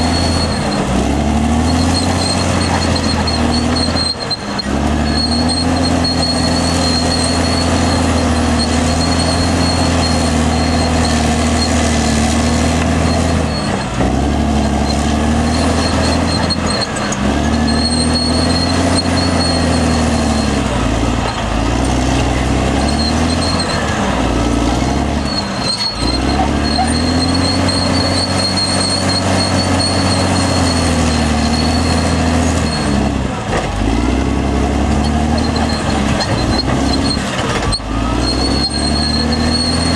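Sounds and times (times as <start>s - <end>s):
bulldozer diesel engine under load: 0.0s - 39.9s.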